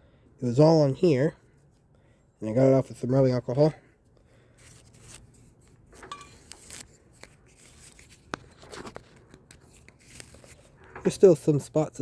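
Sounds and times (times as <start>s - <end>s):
rubbing and rustling of parts: 4.6s - 11.7s.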